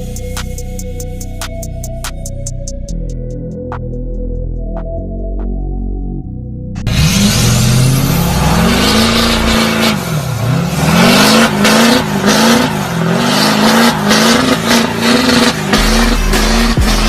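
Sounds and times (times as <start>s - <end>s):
truck engine revving: 6.8s - 17.0s.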